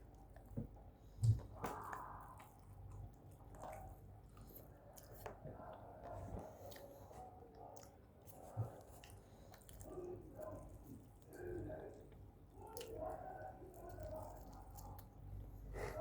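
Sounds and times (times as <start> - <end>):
small wet clicks: 7.6 - 15.4.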